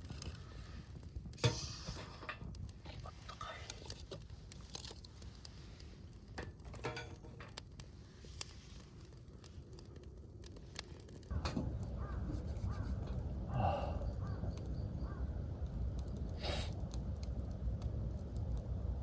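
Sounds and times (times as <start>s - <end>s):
wind rumble on microphone: 11.3s - 19.0s
crow cawing: 11.7s - 15.3s.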